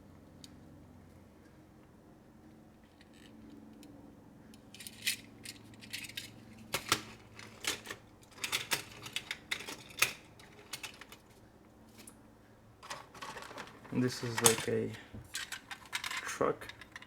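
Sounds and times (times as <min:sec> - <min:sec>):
toy cars clicking and clattering: 0:04.8 - 0:11.2, 0:12.8 - 0:17.0.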